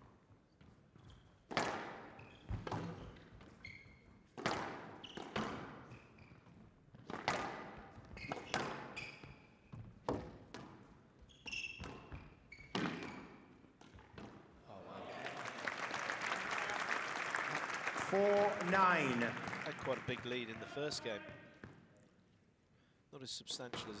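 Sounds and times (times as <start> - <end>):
shoes squeaking on court floor: 0.5 - 14.5
squash ball hitting rackets and walls: 1.5 - 3.5, 4.3 - 5.9, 7.0 - 9.0, 9.7 - 14.5.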